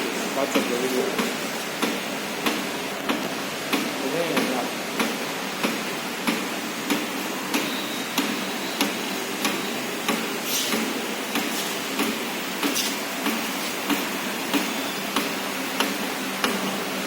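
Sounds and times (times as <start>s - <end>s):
steam boiler hissing: 6.6s - 17.0s.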